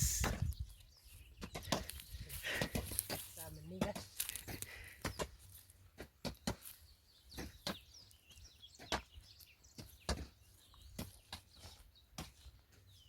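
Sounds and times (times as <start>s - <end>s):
hoes striking soil: 0.0s - 12.9s.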